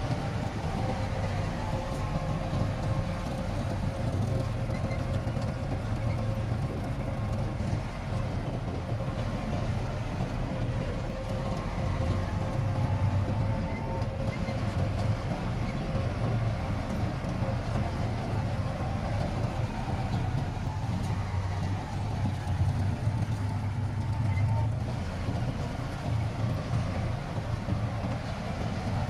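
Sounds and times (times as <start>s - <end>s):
heavy diesel engine running: 0.0s - 29.0s.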